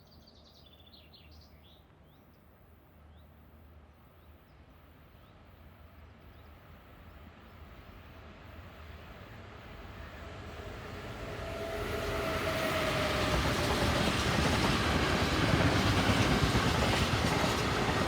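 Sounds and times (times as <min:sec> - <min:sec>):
distant freight train rumble: 0:06.7 - 0:18.0.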